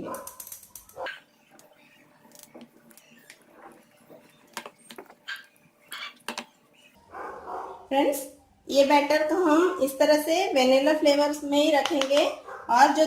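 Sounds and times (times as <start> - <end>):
spoon scraping a mixing bowl: 0.7 - 7.0.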